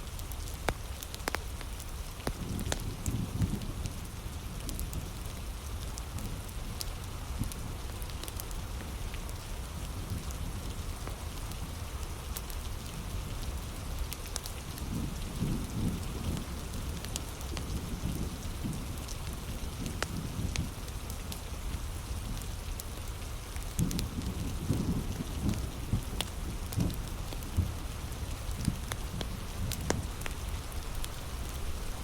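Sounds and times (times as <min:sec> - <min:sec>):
heavy rain: 0:00.0 - 0:32.0
wood fire crackling: 0:00.1 - 0:32.0.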